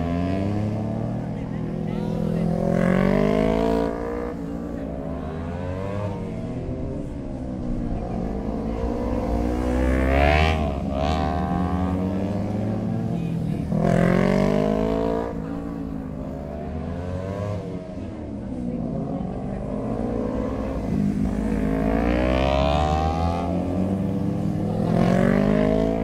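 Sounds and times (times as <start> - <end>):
motorcycle engines revving: 0.0 - 26.0.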